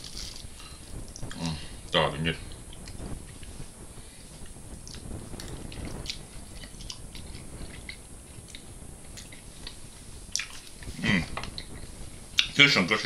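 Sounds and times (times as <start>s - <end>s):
person chewing fried fish: 0.0s - 1.6s, 4.2s - 12.5s
mouth clicks and smacks: 0.0s - 1.7s, 4.3s - 12.6s.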